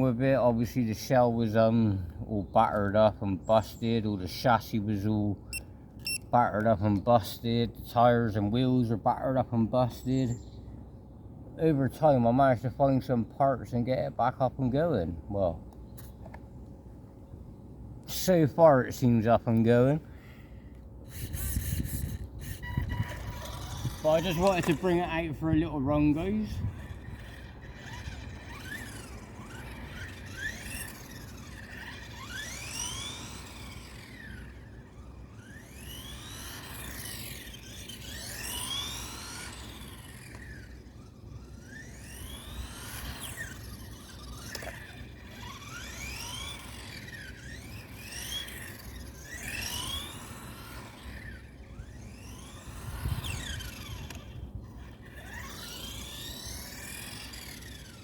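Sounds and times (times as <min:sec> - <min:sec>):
electric motor whining: 0:21.0 - 0:58.0.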